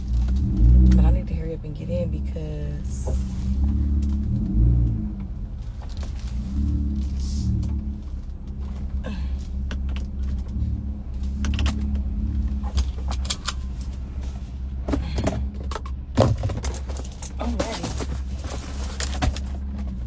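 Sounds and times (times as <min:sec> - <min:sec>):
truck engine running: 0:00.0 - 0:20.0
clicks and rattles of handling: 0:15.2 - 0:20.0.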